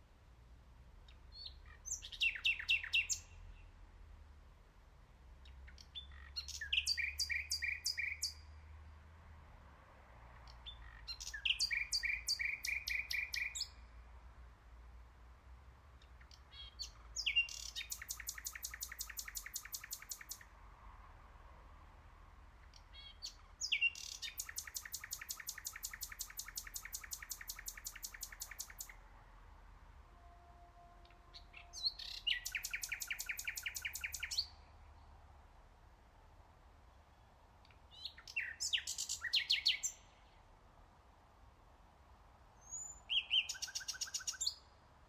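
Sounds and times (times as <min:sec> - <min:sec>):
nightingale singing: 0:01.0 - 0:03.8, 0:05.4 - 0:08.6, 0:10.5 - 0:14.0, 0:16.0 - 0:20.6, 0:22.6 - 0:29.1, 0:30.2 - 0:35.2, 0:36.9 - 0:40.5, 0:42.6 - 0:44.8.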